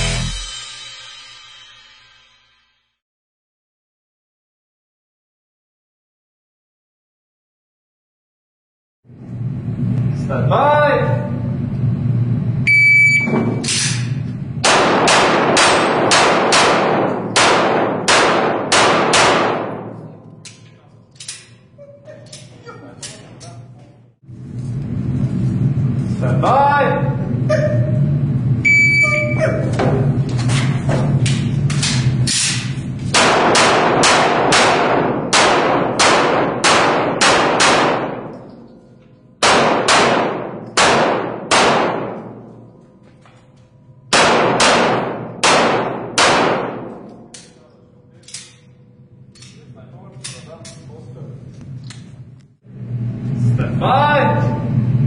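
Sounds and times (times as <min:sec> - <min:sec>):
shot timer beep: 0:12.7 - 0:13.4, 0:28.6 - 0:29.4
handgun shots: 0:14.6 - 0:20.6, 0:31.7 - 0:38.7, 0:39.4 - 0:42.5, 0:44.1 - 0:47.6.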